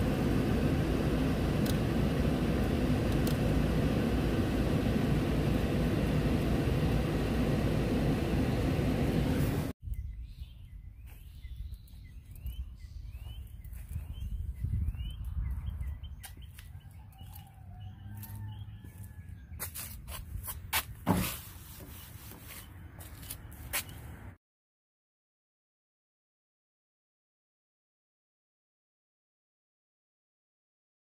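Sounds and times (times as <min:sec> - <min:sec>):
low outdoor rumble: 0:00.0 - 0:09.8
small birds chirping: 0:09.8 - 0:20.0, 0:21.9 - 0:24.1.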